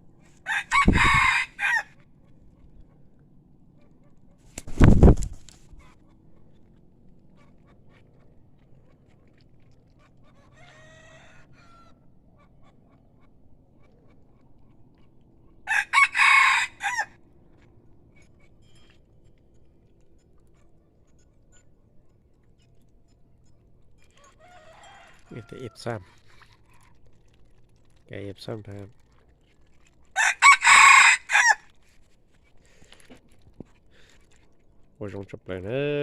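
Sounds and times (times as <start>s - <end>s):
rooster crowing: 0.4s - 2.0s, 10.6s - 12.0s, 15.7s - 17.2s, 24.2s - 25.7s, 30.2s - 31.7s
faint rooster crow: 0.4s - 2.1s, 10.3s - 12.2s, 15.6s - 17.3s, 24.0s - 26.0s, 30.2s - 31.7s.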